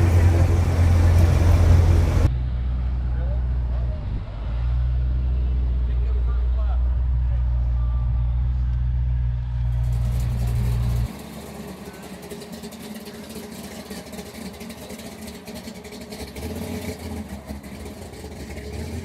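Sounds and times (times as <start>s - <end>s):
background voices: 0.0s - 2.3s
car engine running: 0.0s - 2.3s, 6.9s - 19.0s
loud low rumble: 0.0s - 11.1s.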